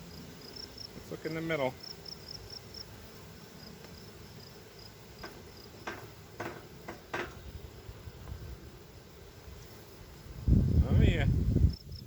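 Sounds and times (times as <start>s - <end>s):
honey bees buzzing: 0.0s - 12.0s
wooden hive frames clicking: 5.2s - 7.5s.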